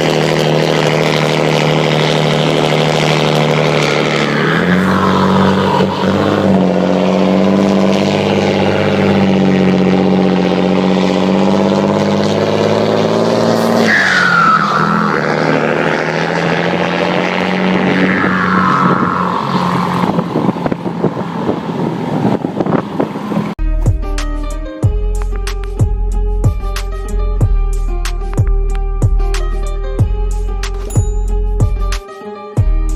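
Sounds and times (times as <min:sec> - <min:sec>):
exhaust crackling: 0:00.0 - 0:23.6
diesel truck engine: 0:00.0 - 0:32.0
falling turbo whistle: 0:13.4 - 0:19.7.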